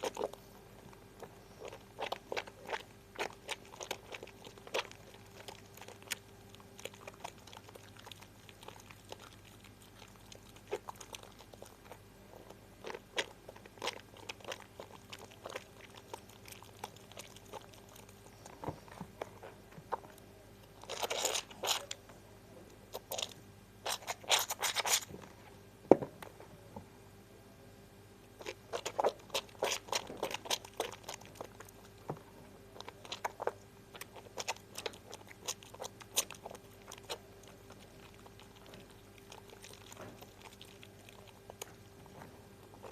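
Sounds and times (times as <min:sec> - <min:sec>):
soap lather squishing: 0:00.0 - 0:22.0, 0:22.9 - 0:25.1, 0:28.3 - 0:42.9.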